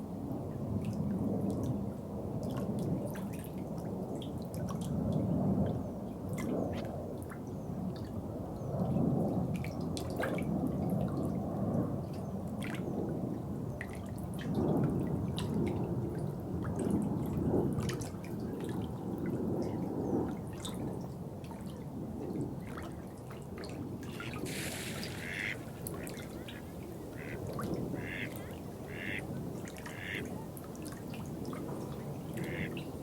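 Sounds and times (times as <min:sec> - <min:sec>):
low rushing water: 0:21.4 - 0:33.0
water gurgling and dripping: 0:23.6 - 0:33.0.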